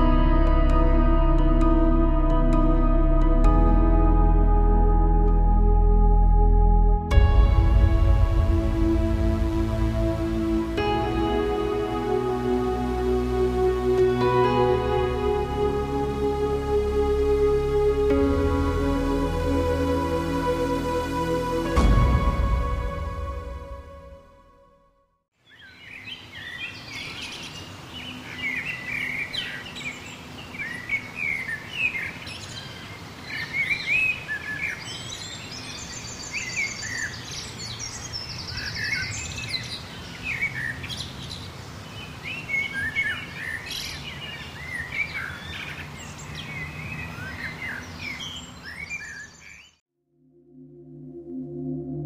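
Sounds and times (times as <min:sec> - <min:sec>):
steady low rumble: 0:00.0 - 0:15.7
songbirds chirping and singing: 0:25.4 - 0:49.8.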